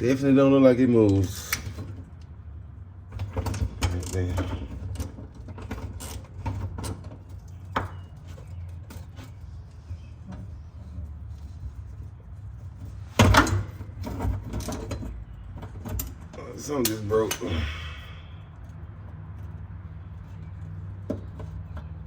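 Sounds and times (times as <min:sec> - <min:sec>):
steady low hum: 0:06.5 - 0:21.8.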